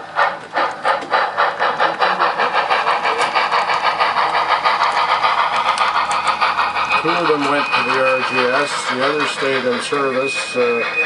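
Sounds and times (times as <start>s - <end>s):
steam locomotive chuffing: 0.0s - 11.0s.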